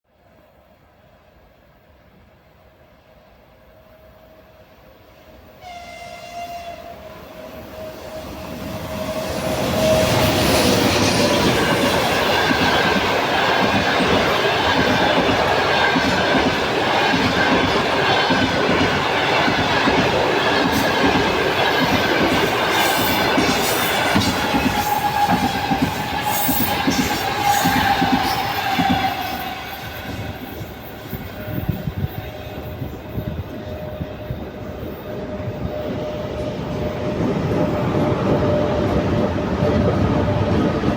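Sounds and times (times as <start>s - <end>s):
train horn blast: 5.6s - 10.6s, 24.0s - 30.7s
train wheels clattering over rail joints: 9.4s - 31.6s.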